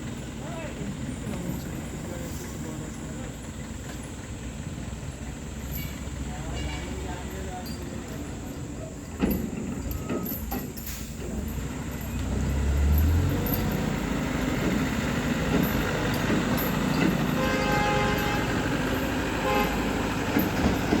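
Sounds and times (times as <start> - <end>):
motor traffic rumble: 0.0 - 21.0
vehicle horn: 17.4 - 18.8, 19.4 - 20.0.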